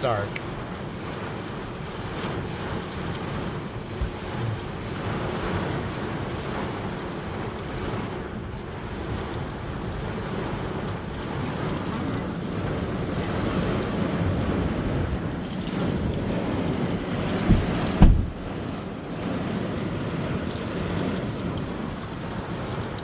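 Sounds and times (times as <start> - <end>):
rain and wind beating on a van: 0.0 - 23.0
short knock: 17.4 - 18.4.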